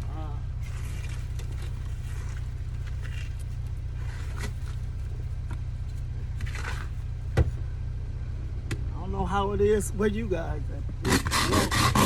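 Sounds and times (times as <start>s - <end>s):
snow brushed and scraped off truck: 0.0s - 7.2s, 11.0s - 12.0s
steady low hum: 0.0s - 12.0s.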